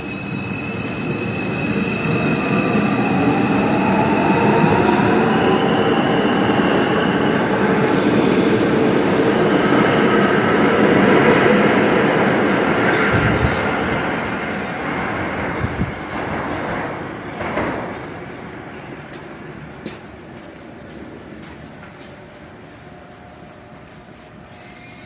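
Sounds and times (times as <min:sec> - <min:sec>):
train cars rumbling: 0:00.0 - 0:24.6
train whine: 0:00.0 - 0:25.0
wheels screeching on rails: 0:24.2 - 0:25.0.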